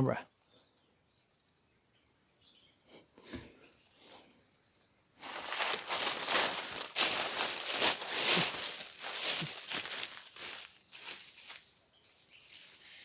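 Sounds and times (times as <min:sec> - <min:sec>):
insects chirring: 0:00.0 - 0:13.0
rustling handling noise: 0:05.2 - 0:11.6.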